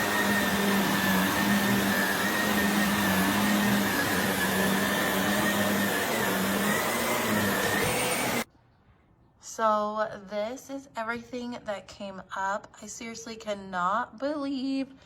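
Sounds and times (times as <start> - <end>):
vacuum cleaner running: 0.0 - 8.5.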